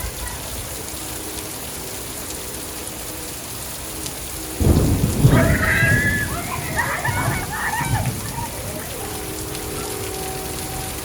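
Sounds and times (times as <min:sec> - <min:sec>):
heavy rain falling: 0:00.0 - 0:11.0
thunder rumbling: 0:04.5 - 0:11.0.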